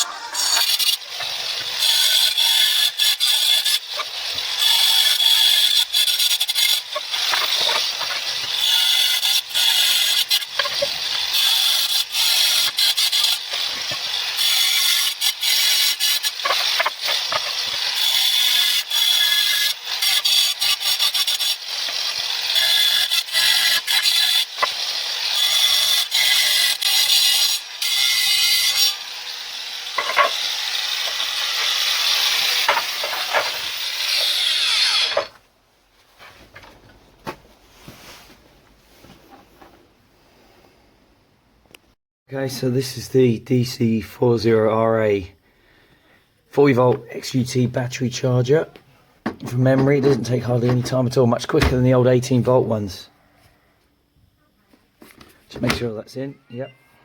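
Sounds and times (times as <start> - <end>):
angle grinder cutting tiles: 0.0 - 35.4.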